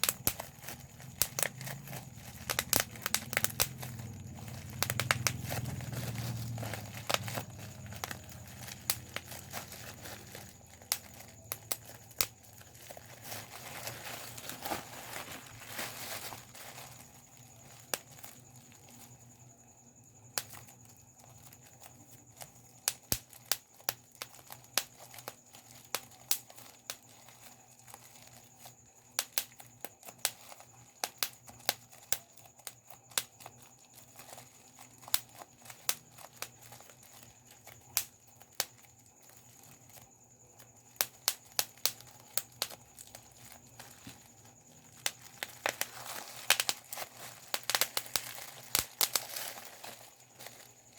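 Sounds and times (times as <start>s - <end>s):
plastic crinkling: 0.0s - 19.6s, 20.2s - 50.9s
bubble wrap popping: 0.0s - 50.9s.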